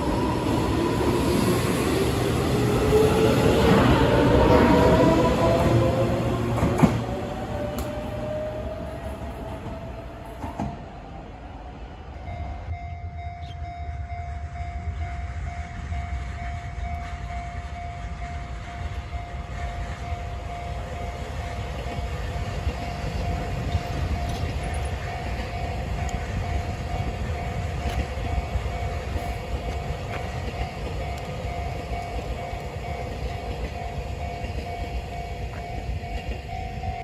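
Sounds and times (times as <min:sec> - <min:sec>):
train wheels rumbling on rail: 0:00.0 - 0:37.0
level-crossing warning bell: 0:12.1 - 0:37.0.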